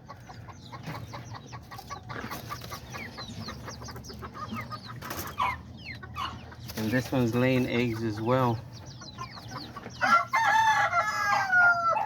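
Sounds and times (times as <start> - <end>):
chickens clucking: 0.0 - 12.0
loud chicken call: 10.0 - 12.0.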